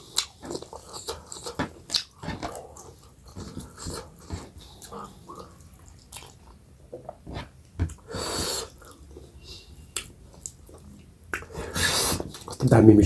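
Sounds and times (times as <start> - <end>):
person chewing with lip smacks: 0.0 - 7.2.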